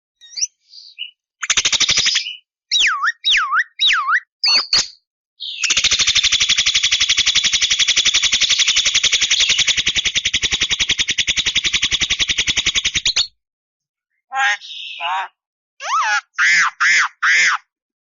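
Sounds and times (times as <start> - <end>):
bird whistling: 0.2 - 5.8, 14.4 - 16.0
bird rattling churr: 5.7 - 13.1.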